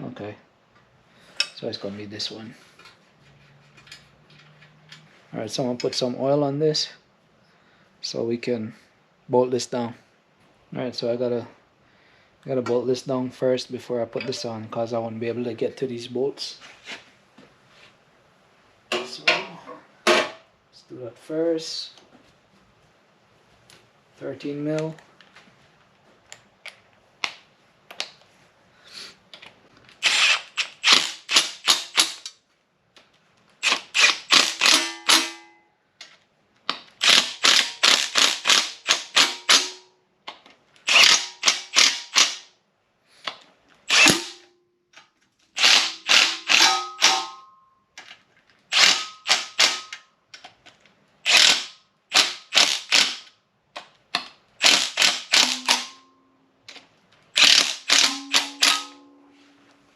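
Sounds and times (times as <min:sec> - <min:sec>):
ratchet wrench clicking: 0:30.0 - 0:32.4, 0:33.6 - 0:35.3, 0:37.0 - 0:39.7, 0:43.9 - 0:44.3, 0:45.6 - 0:46.7, 0:48.7 - 0:50.0, 0:51.3 - 0:53.3, 0:54.6 - 0:55.9, 0:57.4 - 0:59.0.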